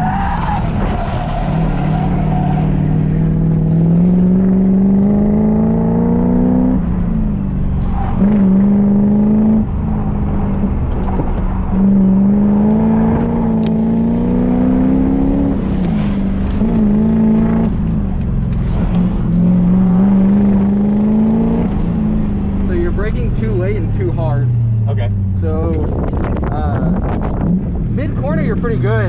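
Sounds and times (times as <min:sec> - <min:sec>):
car engine accelerating hard: 0:00.0 - 0:29.0.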